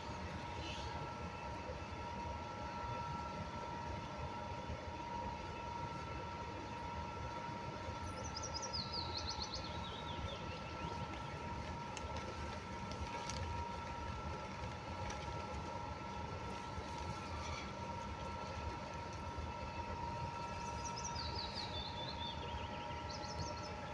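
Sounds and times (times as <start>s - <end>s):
faint hum: 0.0s - 23.9s
low outdoor rumble: 0.0s - 23.9s
small bird singing: 8.0s - 11.4s, 20.4s - 23.9s.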